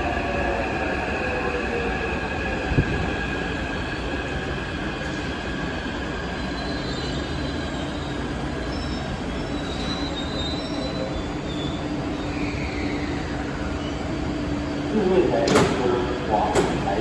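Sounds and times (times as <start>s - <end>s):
wheels and brakes squealing: 6.3s - 14.1s.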